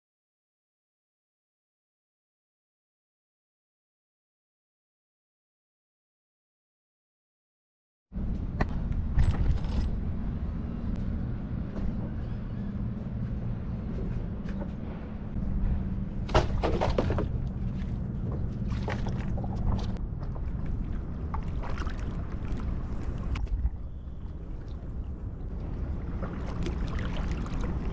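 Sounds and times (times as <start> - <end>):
steady low rumble: 8.1 - 27.9
paddle strokes splashing water: 16.3 - 27.9.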